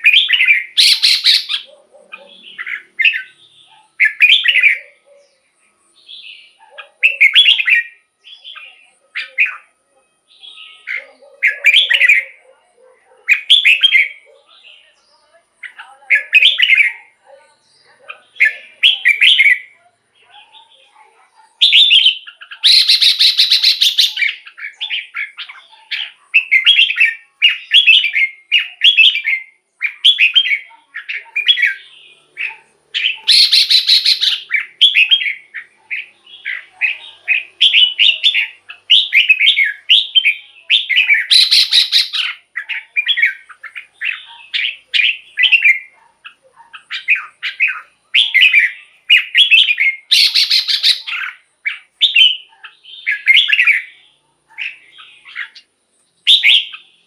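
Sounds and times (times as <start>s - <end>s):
harsh raspy bird call: 0.0s - 5.3s, 21.6s - 57.0s
bird singing warbling phrases: 0.0s - 57.0s.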